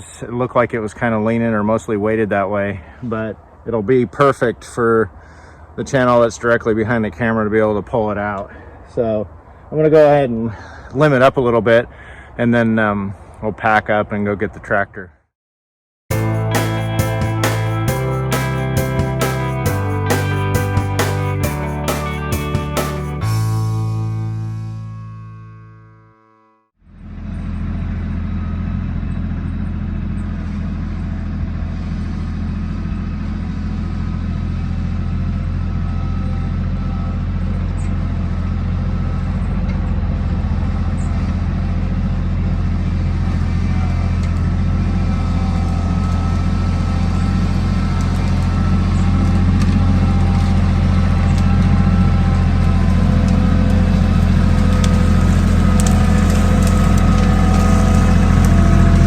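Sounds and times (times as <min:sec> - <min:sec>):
farm vehicle engine running: 0:16.1 - 0:25.3, 0:26.9 - 0:59.0.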